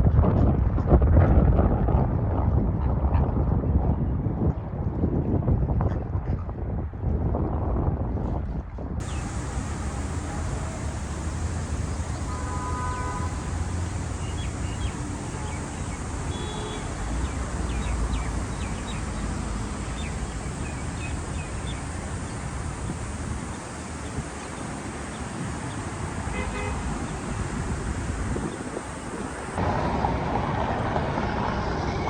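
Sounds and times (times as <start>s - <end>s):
faint chirps and ticks: 9.0s - 29.6s.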